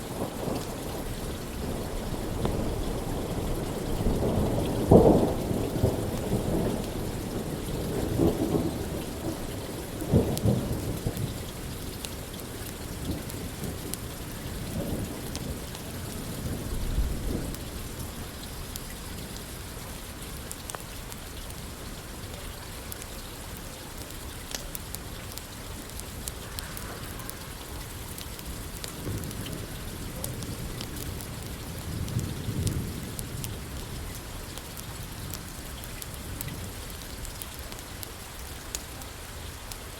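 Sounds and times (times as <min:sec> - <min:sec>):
steady rain: 0:00.0 - 0:39.9
rolling thunder: 0:00.2 - 0:11.4, 0:14.6 - 0:18.3.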